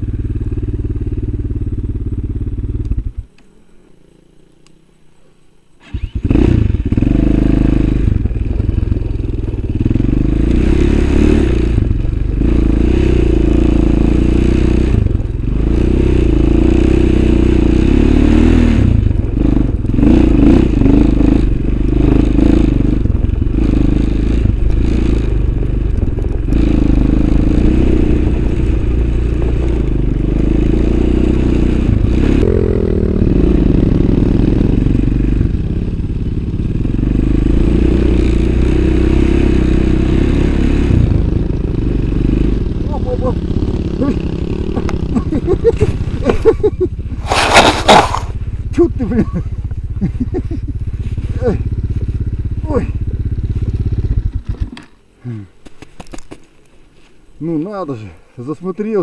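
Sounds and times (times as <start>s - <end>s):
off-road vehicle engine running: 0.0s - 3.4s, 5.8s - 56.4s
scraping and clattering: 47.2s - 48.4s.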